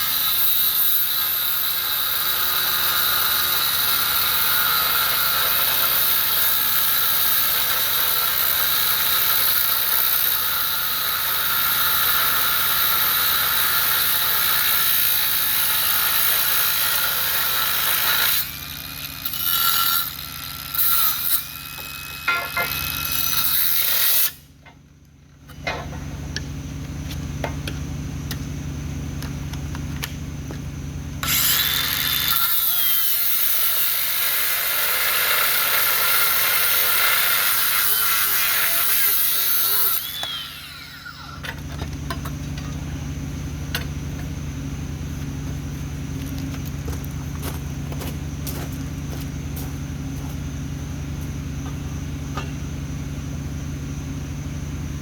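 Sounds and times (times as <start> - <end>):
power tool on metal: 0.0 - 24.5, 31.2 - 42.8.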